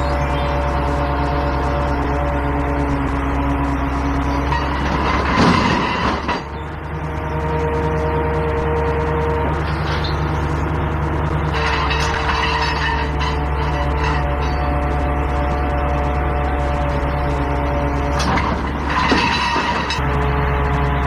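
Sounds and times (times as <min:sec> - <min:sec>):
diesel truck engine running: 0:00.0 - 0:21.0
whining tone: 0:00.0 - 0:21.0.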